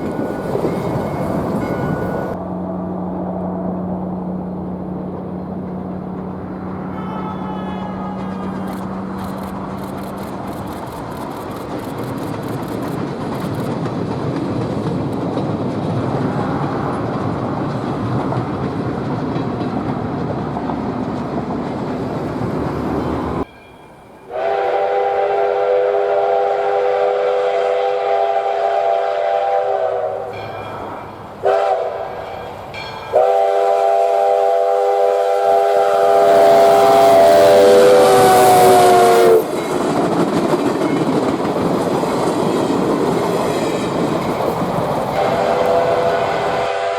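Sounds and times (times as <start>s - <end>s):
steam locomotive chime whistle: 0.0s - 2.4s, 6.7s - 10.2s, 22.9s - 40.0s, 45.1s - 46.9s
train rumbling past: 0.0s - 46.9s.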